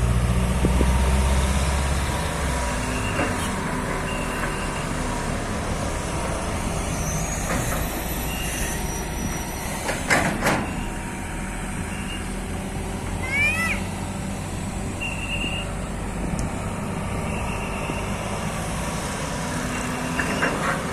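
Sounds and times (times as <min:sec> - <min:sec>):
hydraulic excavator running: 0:00.0 - 0:20.9
faint squeals: 0:06.6 - 0:09.8.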